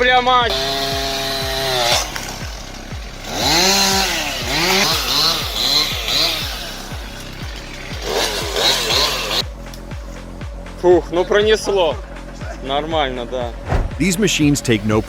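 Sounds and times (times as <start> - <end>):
background music with beat: 0.0 - 15.0
chainsaw engine revving: 0.5 - 9.4.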